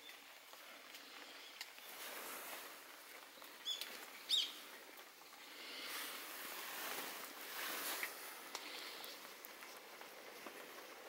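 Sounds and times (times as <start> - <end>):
small bird chirping: 3.2 - 4.7
soft rushing noise: 4.0 - 11.0.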